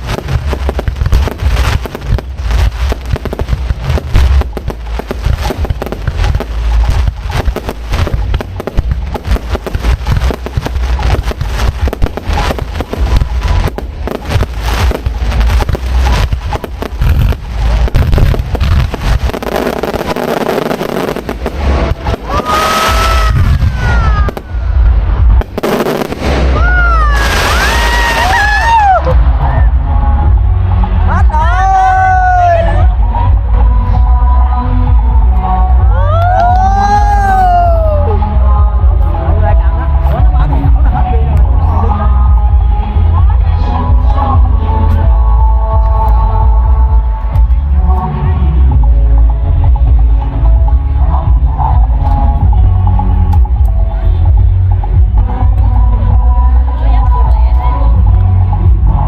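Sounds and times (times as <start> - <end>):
shrill gliding fireworks tones: 0.0 - 29.4
fireworks bangs and crackling: 0.0 - 31.4
heavy low rumble: 0.0 - 59.0.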